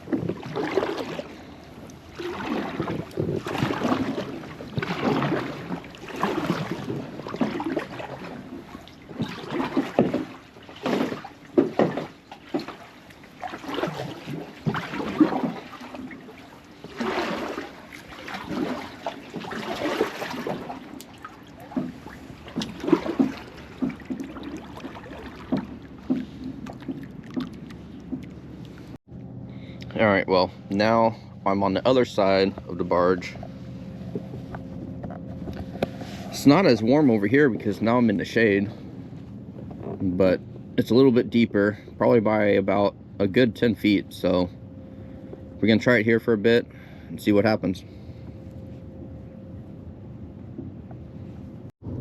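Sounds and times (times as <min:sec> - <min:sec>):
paddle splashing through water: 0:00.0 - 0:29.0, 0:35.5 - 0:38.2.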